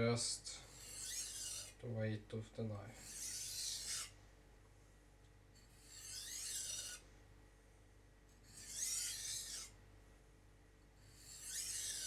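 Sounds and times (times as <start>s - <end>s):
knife scraping on whetstone: 0.7s - 1.8s, 3.0s - 4.2s, 5.6s - 7.0s, 8.5s - 9.8s, 11.0s - 12.0s.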